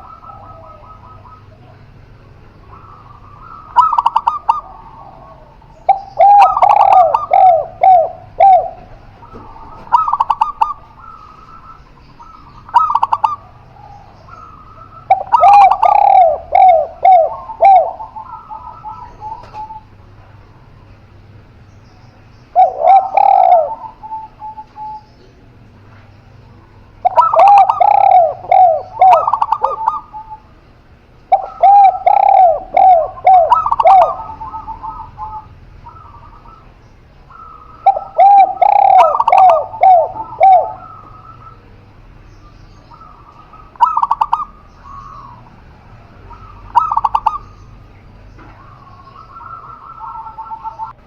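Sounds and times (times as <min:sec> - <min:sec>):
doves cooing: 0:00.0 - 0:51.0.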